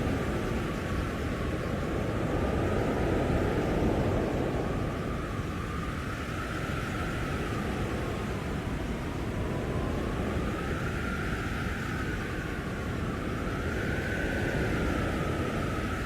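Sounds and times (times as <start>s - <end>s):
blizzard wind howling: 0.0s - 16.0s.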